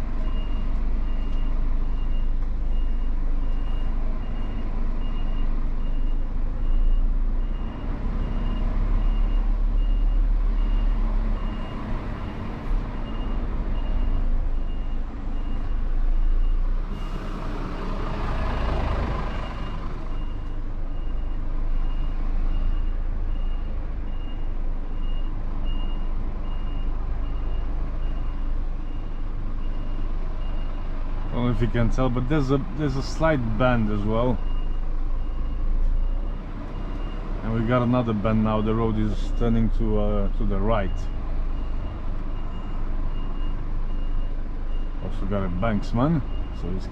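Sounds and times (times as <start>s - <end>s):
truck engine running: 11.4s - 46.9s.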